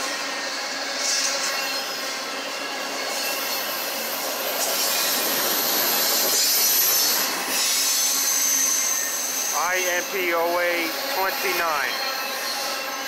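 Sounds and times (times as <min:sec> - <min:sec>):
train wheels rumbling and clattering: 0:00.0 - 0:09.5.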